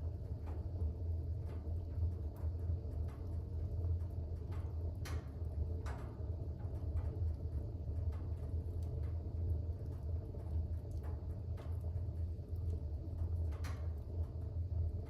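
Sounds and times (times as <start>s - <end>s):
fire rumbling and crackling: 0.0s - 15.0s
fire pops: 10.0s - 14.3s.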